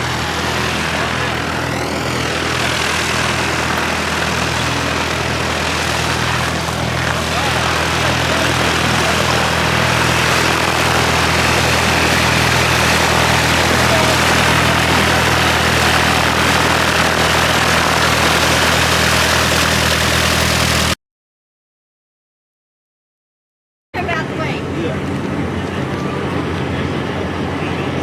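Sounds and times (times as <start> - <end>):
truck diesel engine idling: 0.0 - 21.0.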